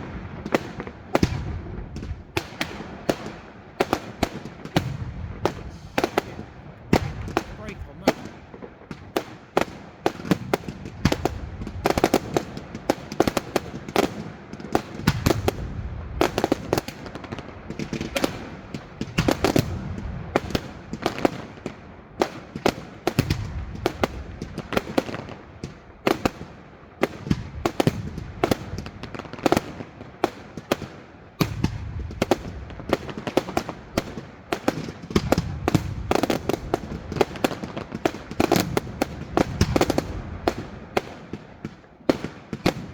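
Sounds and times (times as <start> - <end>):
low booms of shells bursting: 0.0 - 14.0, 15.0 - 26.6
fireworks bangs and crackles: 0.0 - 42.9.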